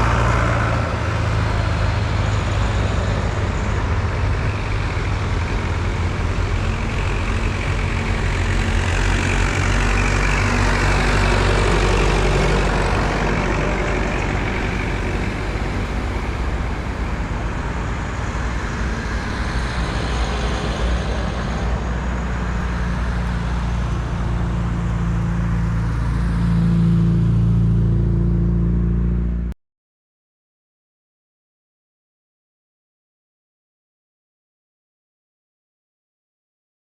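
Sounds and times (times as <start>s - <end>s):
tractor engines running: 0.0s - 28.0s.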